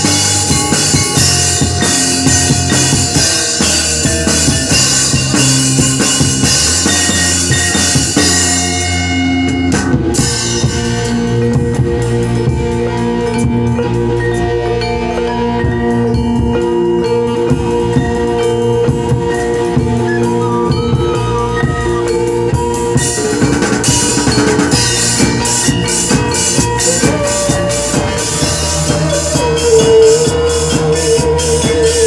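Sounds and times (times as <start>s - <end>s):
drum kit with cymbals: 0.0s - 32.0s
held instrument tones: 0.0s - 32.0s
melody line: 0.0s - 32.0s.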